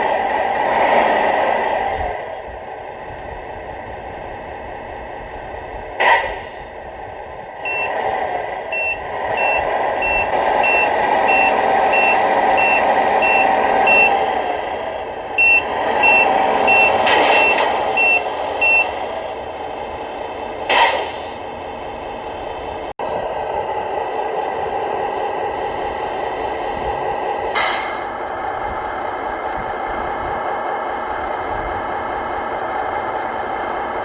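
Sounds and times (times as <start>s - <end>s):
simulated diesel engine: 0.0s - 34.0s
short sharp air hisses: 6.0s - 6.7s, 20.7s - 21.4s, 27.5s - 28.1s
reversing alarm beeping: 7.6s - 8.0s, 8.7s - 14.3s, 15.4s - 19.0s.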